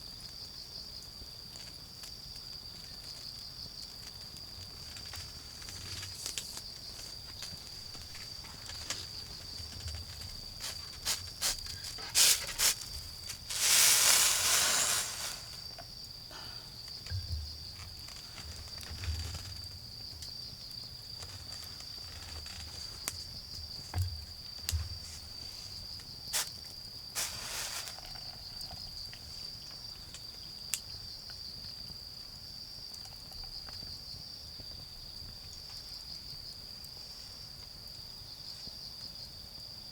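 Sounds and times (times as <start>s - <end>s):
insects chirring: 0.0s - 39.9s
wood fire crackling: 3.8s - 15.8s.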